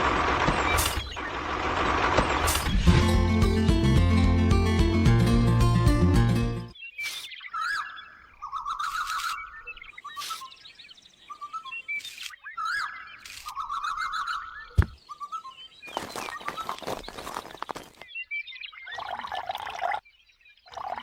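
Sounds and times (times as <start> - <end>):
birds chirping and trilling: 0.5 - 1.7, 6.7 - 21.0
background music: 2.8 - 6.8.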